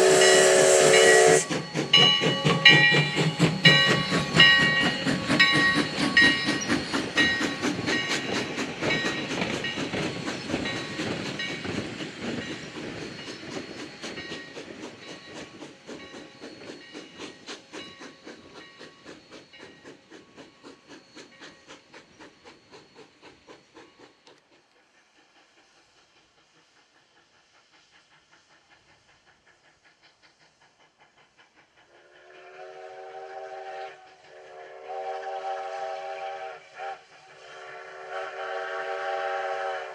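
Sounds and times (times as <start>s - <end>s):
steam whistle chord: 0.0s - 1.6s, 32.2s - 39.9s
steam locomotive chugging: 0.0s - 39.9s.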